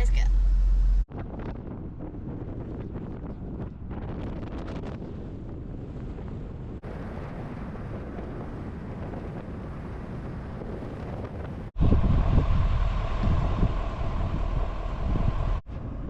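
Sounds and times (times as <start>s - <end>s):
vehicle road noise: 0.0s - 1.1s, 11.7s - 16.0s
wind buffeting microphone: 0.0s - 16.0s.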